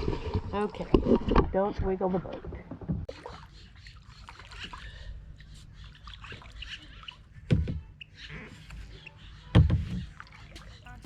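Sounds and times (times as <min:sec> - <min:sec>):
water splashing and trickling: 0:00.0 - 0:08.0, 0:08.7 - 0:11.0.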